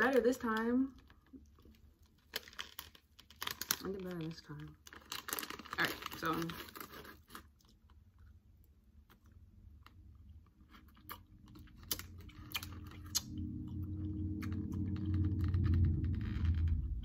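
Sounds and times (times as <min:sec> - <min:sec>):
low hum: 0:10.9 - 0:17.0
sticky chewing mouth clicks: 0:11.0 - 0:15.0.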